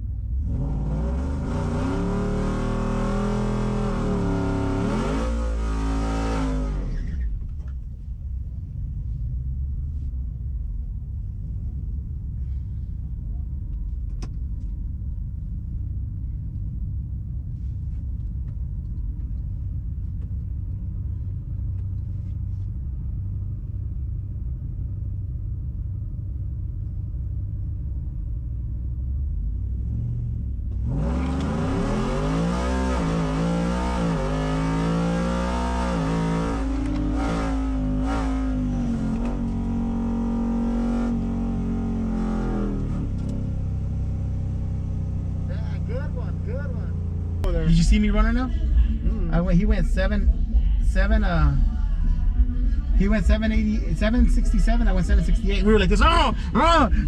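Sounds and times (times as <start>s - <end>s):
low engine rumble: 0.0s - 57.0s
race engine revving: 0.4s - 7.0s, 30.8s - 57.0s.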